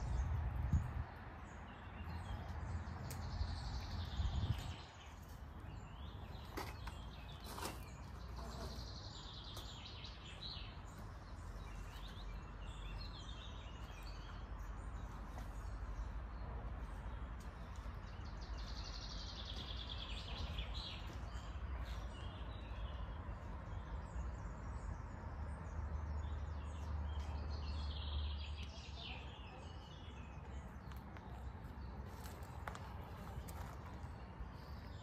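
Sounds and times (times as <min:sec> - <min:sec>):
steady low rumble: 0:00.0 - 0:06.0
songbird singing: 0:00.0 - 0:35.0.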